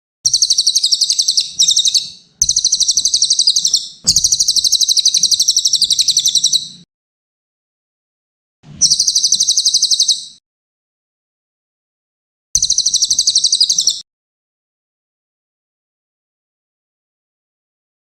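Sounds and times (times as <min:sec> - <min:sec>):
parrot singing rapid trills: 0:00.3 - 0:06.8, 0:08.8 - 0:10.4, 0:12.6 - 0:14.0.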